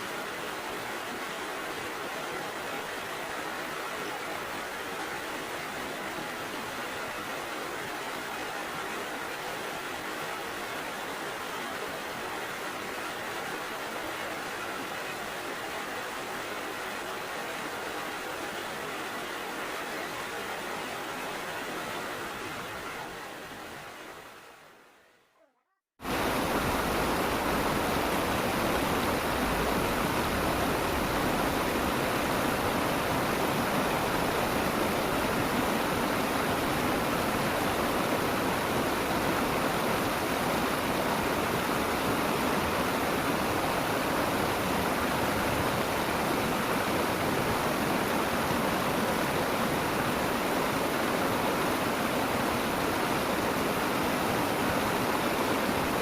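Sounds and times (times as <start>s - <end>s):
stream water rushing: 0.0s - 24.7s, 26.0s - 56.0s.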